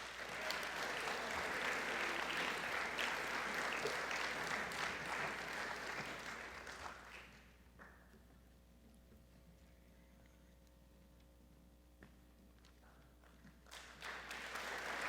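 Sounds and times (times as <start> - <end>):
audience applause: 0.0 - 7.4, 13.7 - 15.0.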